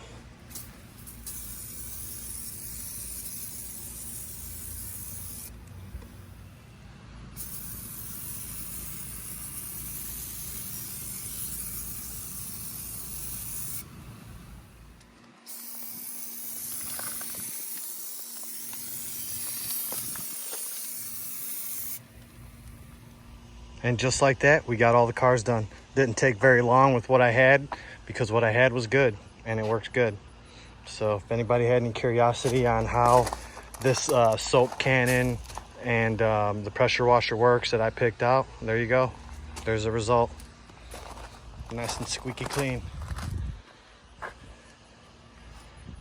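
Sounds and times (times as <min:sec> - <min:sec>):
spray hissing: 0:00.0 - 0:06.8, 0:07.4 - 0:23.2.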